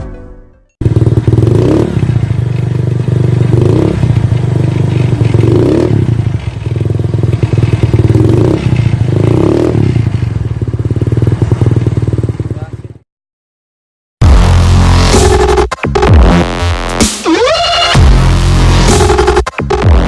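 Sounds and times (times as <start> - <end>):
scooter engine running: 0.8 - 13.0.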